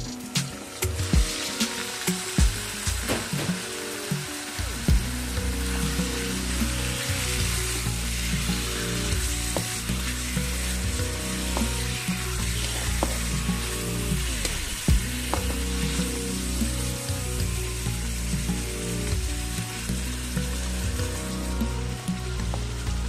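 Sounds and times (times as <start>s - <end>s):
chicken sizzling in hot oil: 0.0s - 23.0s
wooden spatula scraping a pan: 7.5s - 14.0s.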